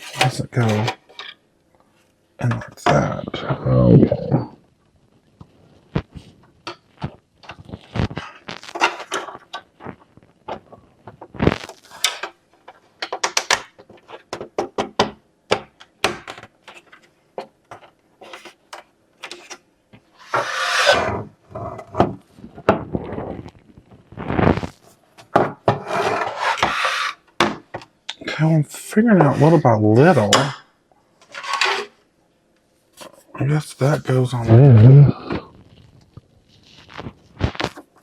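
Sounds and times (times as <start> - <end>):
rubbing or scraping: 0.0 - 1.0, 20.2 - 25.0, 25.7 - 27.2, 31.3 - 32.0, 33.0 - 38.0
plastic parts clicking and knocking: 5.4 - 20.1.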